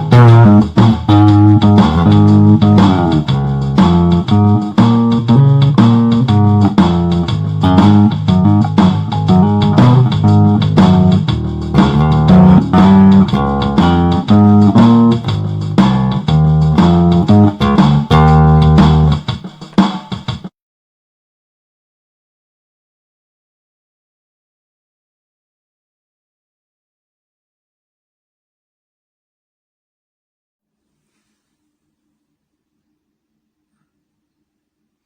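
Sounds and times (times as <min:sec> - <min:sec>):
electric bass plucked notes: 0:00.0 - 0:19.2.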